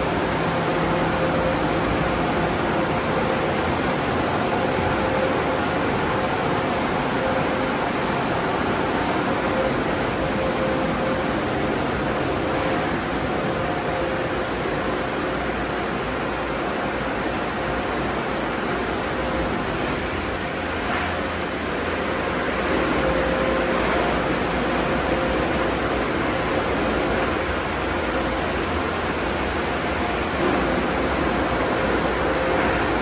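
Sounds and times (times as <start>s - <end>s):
faint motor hum: 0.0s - 33.0s.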